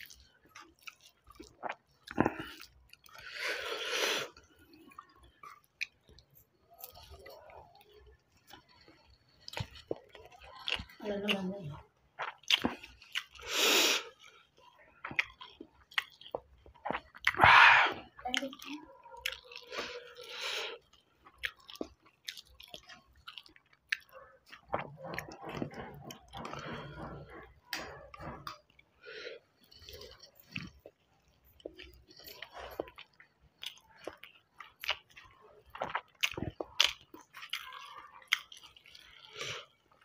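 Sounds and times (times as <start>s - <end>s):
wet chewing and mouth smacking: 0.0s - 40.0s
breathy noises: 17.3s - 18.2s, 25.0s - 30.4s.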